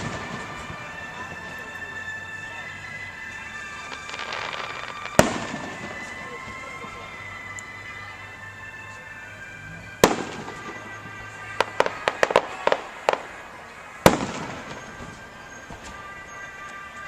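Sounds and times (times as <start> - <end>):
firework bangs: 0.0 - 17.0
crackling firework pops: 3.6 - 6.6.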